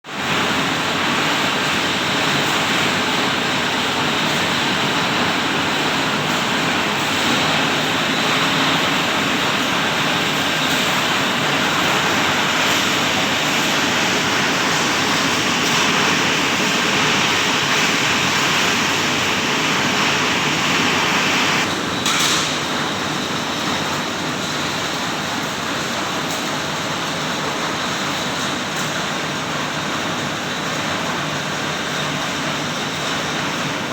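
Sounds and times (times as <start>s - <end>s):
shredder machine running: 0.4s - 22.0s.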